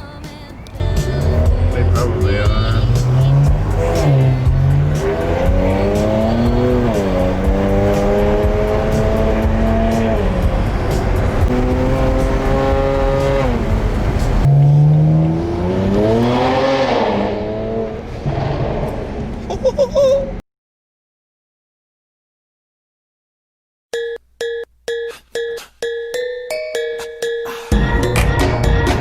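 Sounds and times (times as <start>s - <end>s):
car engine accelerating: 0.7s - 19.5s.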